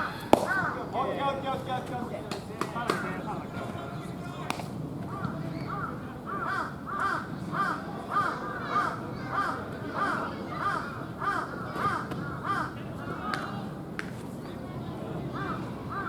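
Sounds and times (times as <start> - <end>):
crow cawing: 0.0 - 0.8, 5.1 - 12.8, 15.4 - 16.0.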